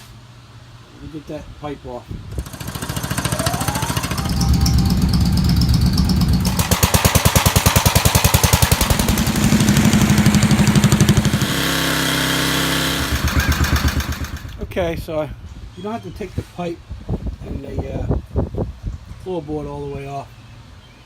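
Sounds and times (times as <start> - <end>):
impact wrench hammering: 6.5 - 9.2.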